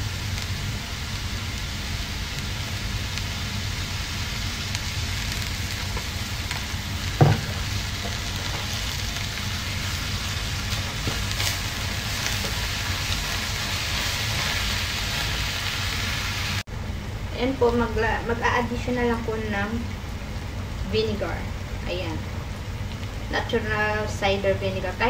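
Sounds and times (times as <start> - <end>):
leaves frying in oil: 0.0 - 16.7
spatula stirring: 5.7 - 15.6.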